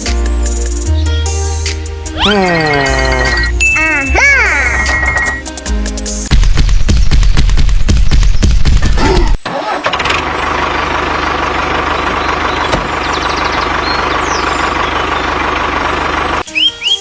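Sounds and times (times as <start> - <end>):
music: 0.0 - 6.4, 16.4 - 17.0
birds chirping: 2.1 - 5.5, 11.6 - 17.0
tractor engine idling: 9.8 - 16.7.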